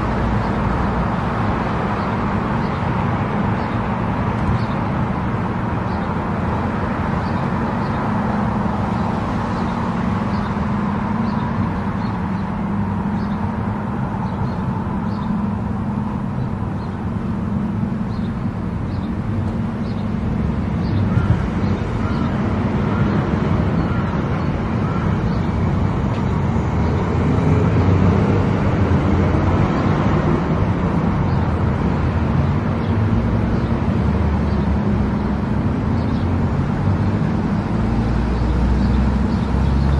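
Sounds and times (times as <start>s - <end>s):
low engine drone: 0.0s - 39.9s
tyre and road noise: 0.0s - 39.9s.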